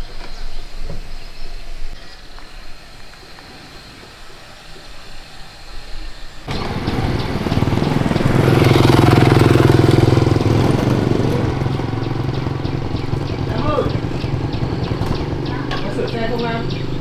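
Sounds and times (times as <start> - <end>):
motorcycle engine running: 6.5 - 17.0.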